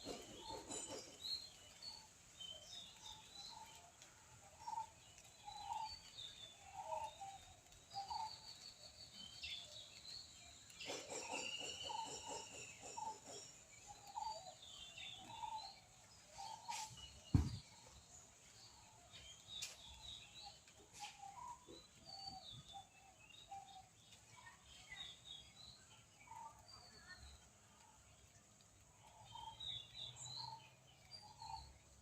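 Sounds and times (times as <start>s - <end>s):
sharp thump: 17.3s - 17.7s.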